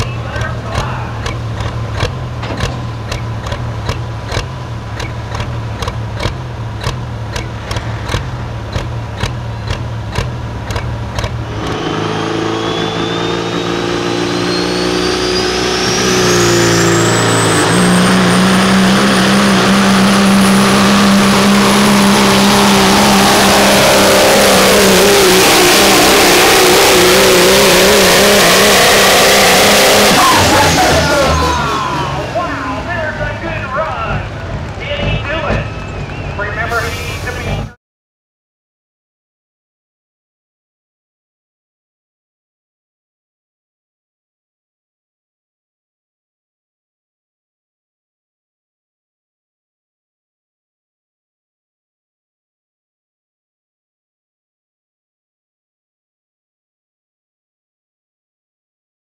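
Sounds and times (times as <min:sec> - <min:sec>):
truck engine revving: 0:00.0 - 0:37.8.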